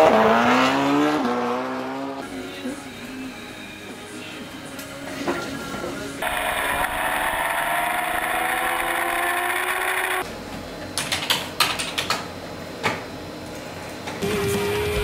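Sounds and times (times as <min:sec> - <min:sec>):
racing motorcycle engine revving: 0:00.0 - 0:02.2, 0:06.2 - 0:10.2.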